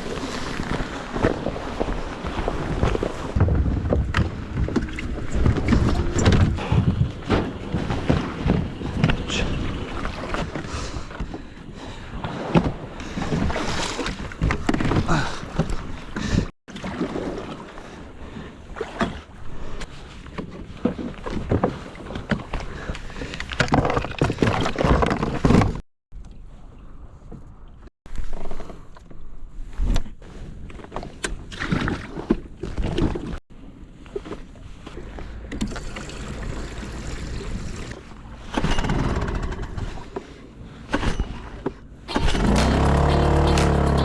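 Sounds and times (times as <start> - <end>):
wind buffeting microphone: 0.0 - 10.0
water splashing around kayak hull: 0.0 - 26.6.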